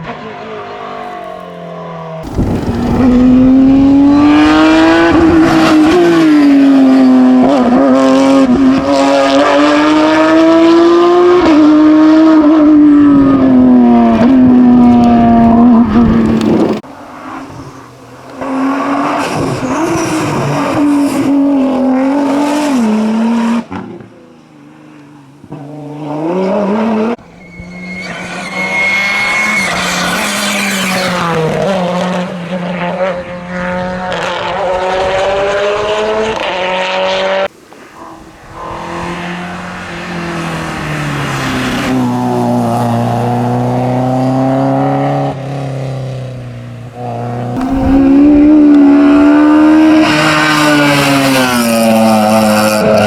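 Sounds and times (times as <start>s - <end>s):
car approaching: 0.0s - 53.0s
race cars revving and accelerating: 0.0s - 53.0s.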